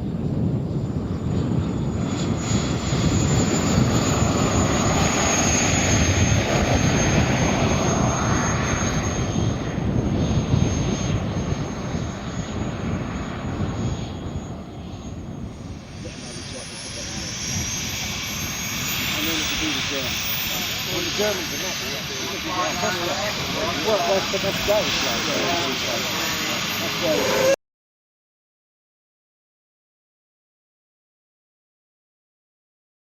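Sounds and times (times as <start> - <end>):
jet turbine whine passing: 0.0 - 27.6.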